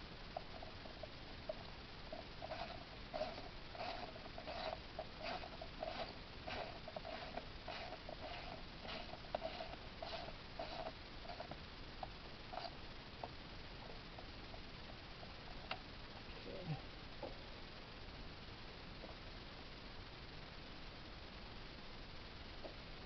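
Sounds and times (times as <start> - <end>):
ratchet clicking: 2.2 - 11.4.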